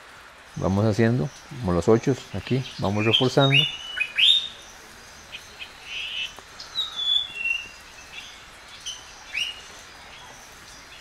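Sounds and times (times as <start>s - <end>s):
faint outdoor background noise: 0.0s - 11.0s
bird chirps: 2.4s - 11.0s.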